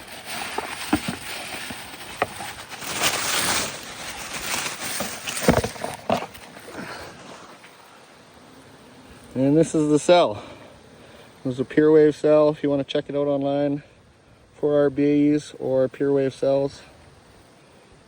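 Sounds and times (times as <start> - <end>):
package rustling: 0.0 - 7.8.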